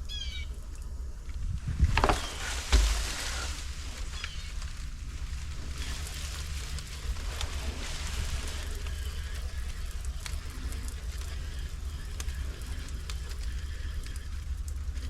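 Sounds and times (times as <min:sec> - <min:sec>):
water spray hitting surface: 0:01.8 - 0:13.3
pressure washer engine hum: 0:01.8 - 0:15.0.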